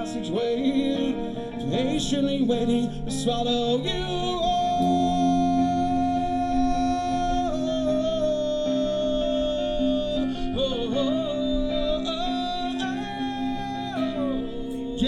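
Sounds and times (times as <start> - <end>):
sustained guitar chords: 0.0 - 15.0
long held melodic note: 4.6 - 15.0.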